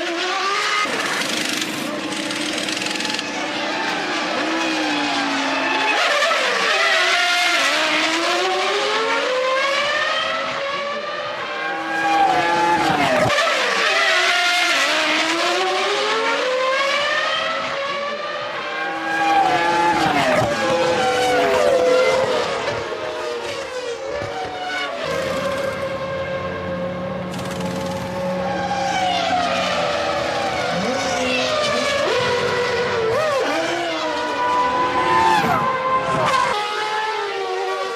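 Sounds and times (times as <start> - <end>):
racing car engines shifting gears: 11.6 - 37.9.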